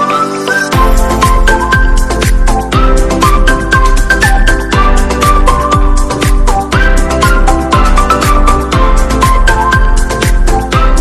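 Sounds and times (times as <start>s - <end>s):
electronic dance music: 0.0s - 11.0s
synth melody: 0.0s - 11.0s
kick drum: 0.8s - 11.0s.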